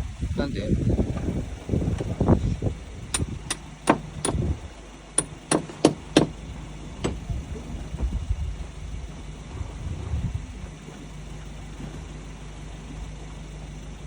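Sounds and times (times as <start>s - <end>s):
low steady hum: 0.0s - 14.0s
sharp knocks: 3.2s - 4.5s, 5.2s - 6.4s, 7.0s - 7.2s.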